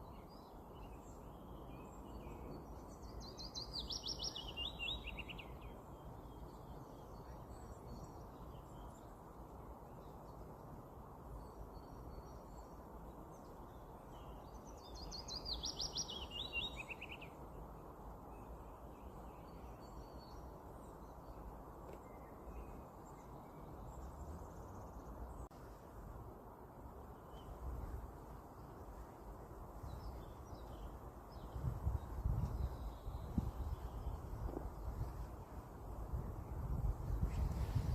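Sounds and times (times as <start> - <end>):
songbird song phrase: 0.0 - 25.6, 27.0 - 37.9.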